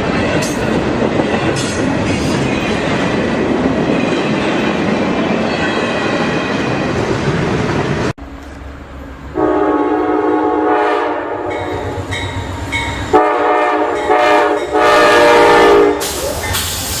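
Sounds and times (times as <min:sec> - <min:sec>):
freight train wheels clattering on rails: 0:00.0 - 0:08.6, 0:11.5 - 0:17.0
locomotive air horn blasts: 0:09.4 - 0:12.0, 0:13.1 - 0:16.2.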